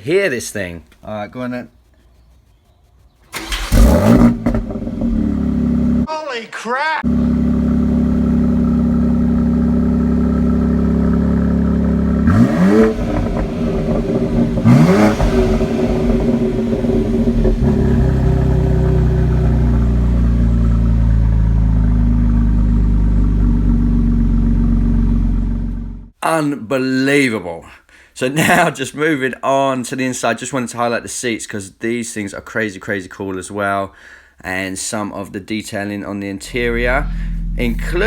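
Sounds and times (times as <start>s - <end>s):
car engine idling and revving: 3.4s - 6.1s, 7.1s - 26.2s, 36.4s - 38.0s.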